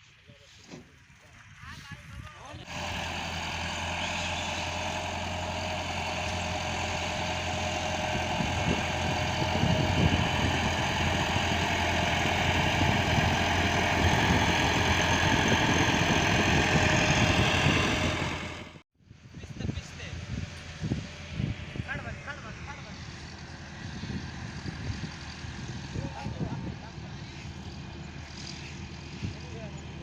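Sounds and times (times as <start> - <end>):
vehicle engine running: 2.3 - 18.8, 19.8 - 30.0.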